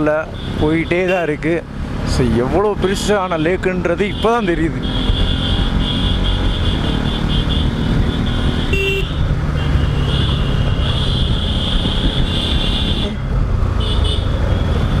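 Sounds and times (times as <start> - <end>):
road noise: 0.0 - 15.0
motorcycle engine running: 4.2 - 15.0.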